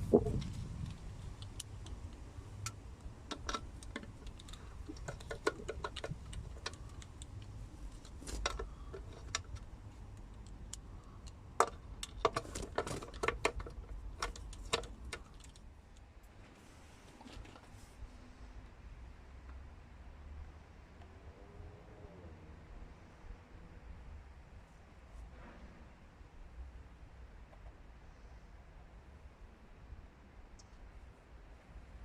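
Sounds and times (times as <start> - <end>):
hand tools clicking and tapping: 0.0 - 15.6.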